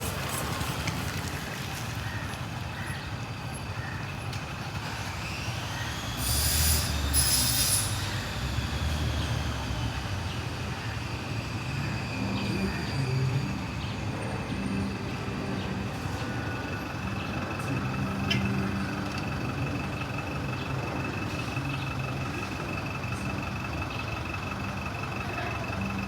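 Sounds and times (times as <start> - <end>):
road traffic passing: 0.0 - 26.0
loud high-pitched hissing bursts: 6.0 - 8.3.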